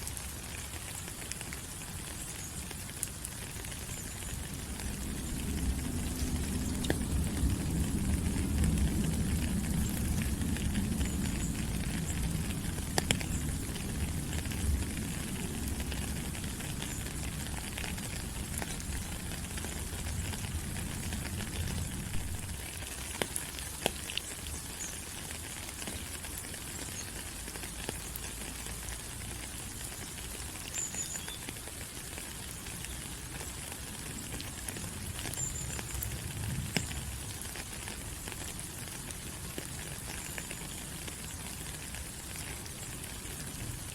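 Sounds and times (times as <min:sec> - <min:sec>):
rain falling on leaves: 0:00.0 - 0:43.9.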